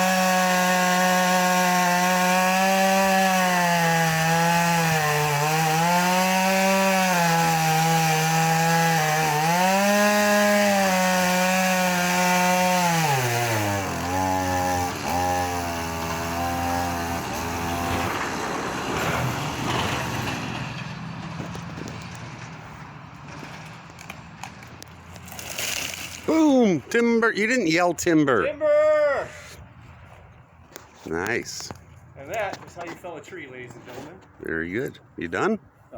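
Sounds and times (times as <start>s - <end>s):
chainsaw cutting tree trunk: 0.0s - 20.1s.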